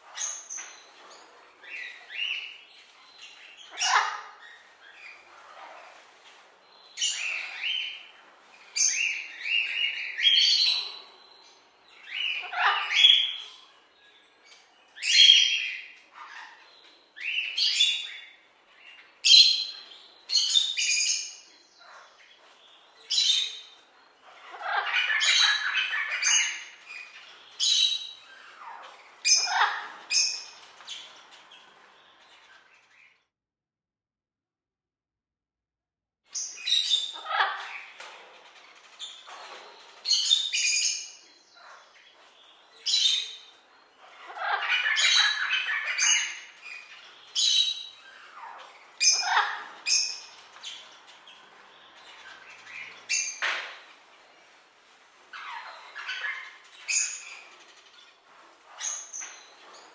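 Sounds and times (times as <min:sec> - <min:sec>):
parrot squawking: 0:03.7 - 0:04.7, 0:12.2 - 0:13.4, 0:24.4 - 0:26.8, 0:28.4 - 0:30.1, 0:36.9 - 0:37.9, 0:44.0 - 0:50.4, 0:55.3 - 0:57.5.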